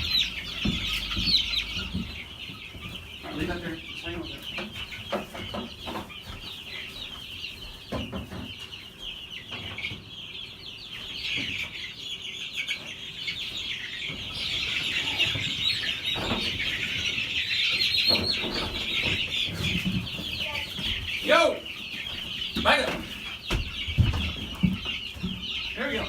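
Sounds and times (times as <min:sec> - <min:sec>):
dull knocks: 0:00.0 - 0:03.6
chicks peeping: 0:00.0 - 0:26.0.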